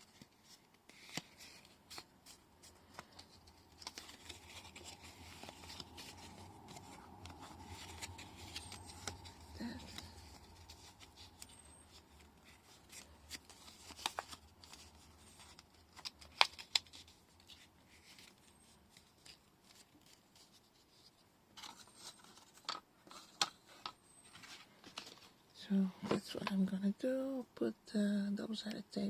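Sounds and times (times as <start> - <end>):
paper rustling: 0.0 - 25.4.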